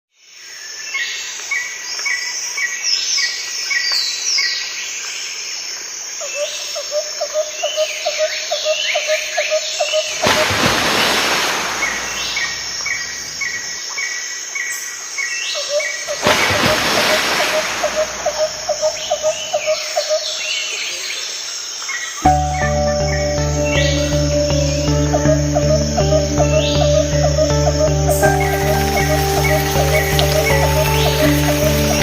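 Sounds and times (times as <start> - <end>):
birds chirping and whistling: 25.6 - 32.0.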